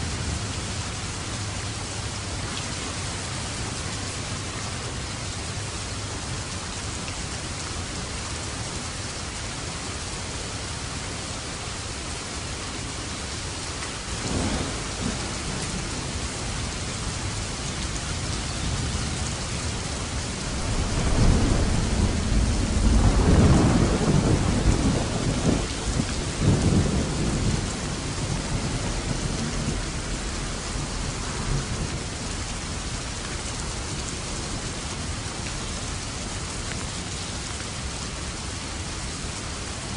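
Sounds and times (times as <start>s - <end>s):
steady rain falling: 0.0s - 39.9s
thunder rumbling: 14.2s - 17.1s, 19.6s - 33.0s.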